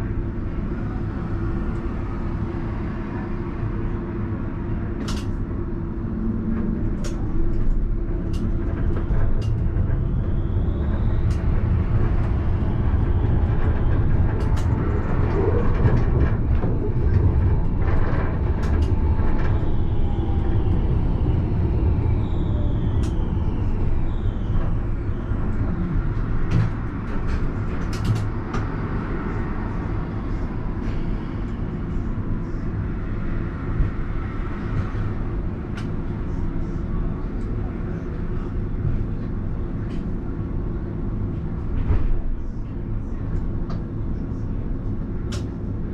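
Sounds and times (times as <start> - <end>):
tram wheels rumbling on rail: 0.0 - 45.9.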